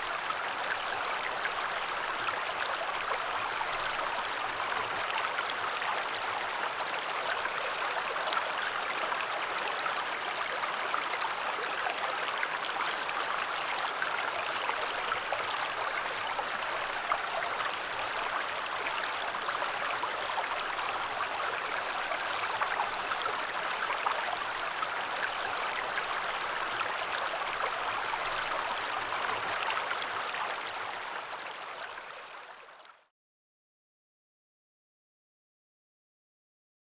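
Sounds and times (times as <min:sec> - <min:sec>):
river water rushing: 0:12.4 - 0:16.4.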